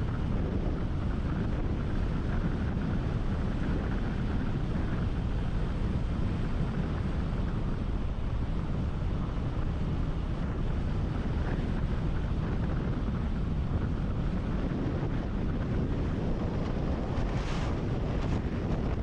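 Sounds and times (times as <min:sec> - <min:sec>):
wind buffeting microphone: 0:00.0 - 0:19.0
low rumble: 0:12.0 - 0:19.0.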